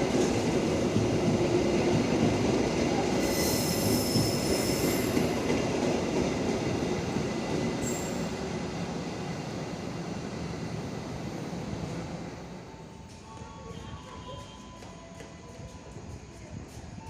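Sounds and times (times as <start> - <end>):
train rumbling: 0.0 - 17.0
steel wheels squealing on rails: 2.9 - 5.6, 7.7 - 8.5, 12.8 - 17.0.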